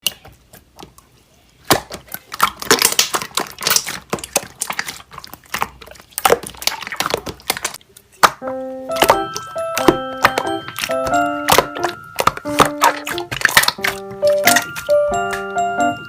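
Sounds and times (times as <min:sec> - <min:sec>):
slime squished by hand: 0:01.6 - 0:08.4, 0:09.0 - 0:15.5
background music: 0:08.3 - 0:16.0.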